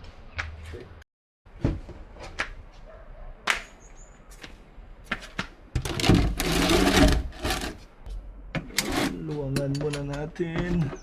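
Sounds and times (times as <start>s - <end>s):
loud scraping rustling: 5.8s - 8.0s, 8.8s - 9.3s.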